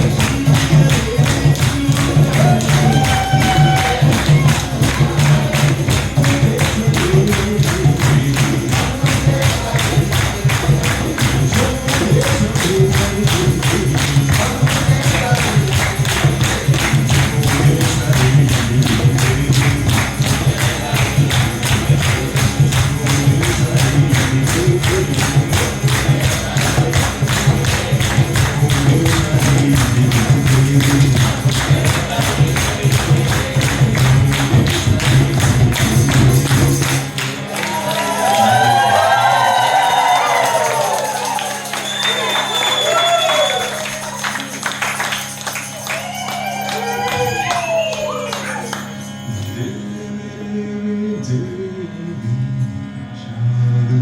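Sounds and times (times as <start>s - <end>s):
steady low drone: 0.0s - 39.8s
jingling hand percussion: 0.0s - 50.4s.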